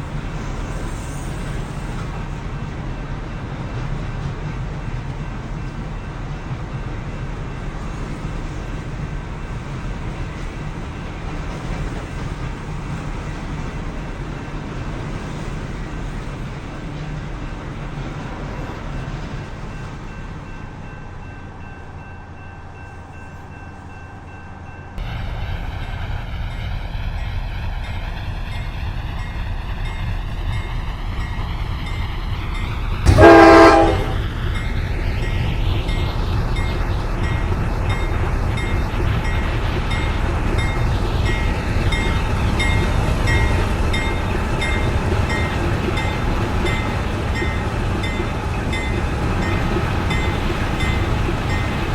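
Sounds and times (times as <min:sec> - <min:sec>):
train rumbling: 0:00.0 - 0:51.9
locomotive air horn blast: 0:33.1 - 0:34.2.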